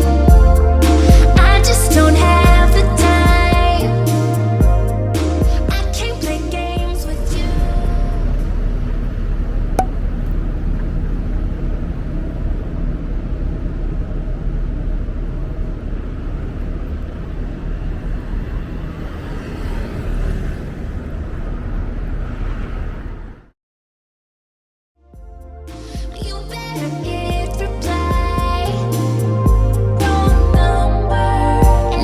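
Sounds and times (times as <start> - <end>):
traffic rumble: 0.0 - 23.5.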